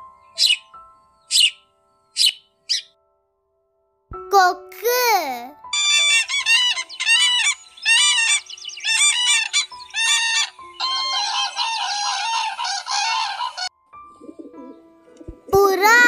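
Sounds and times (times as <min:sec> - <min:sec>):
long continuous bird call: 0:00.0 - 0:03.0, 0:05.8 - 0:14.9
short repeated bird calls: 0:01.3 - 0:01.6, 0:02.2 - 0:02.9.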